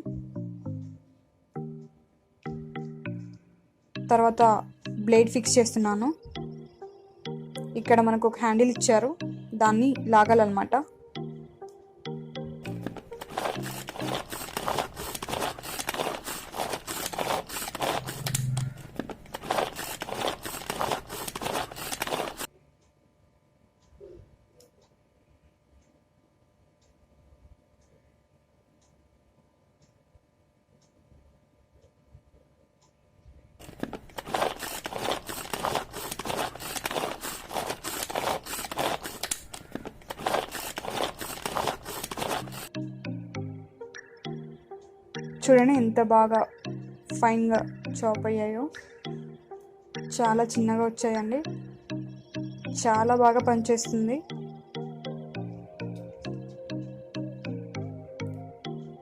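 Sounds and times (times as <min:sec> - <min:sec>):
pull-cord chopper strokes: 0:12.7 - 0:22.5, 0:33.6 - 0:42.7.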